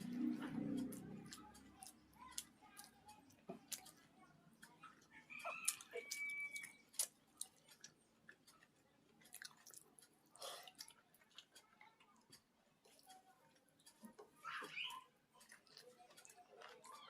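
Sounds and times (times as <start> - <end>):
person chewing with wet clicks: 0.0 - 17.0.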